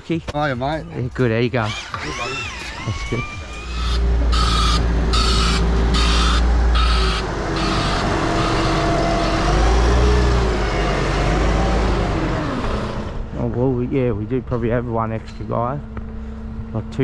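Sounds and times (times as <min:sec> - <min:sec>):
truck engine revving: 0:01.5 - 0:17.0
reversing beeper: 0:02.0 - 0:11.9.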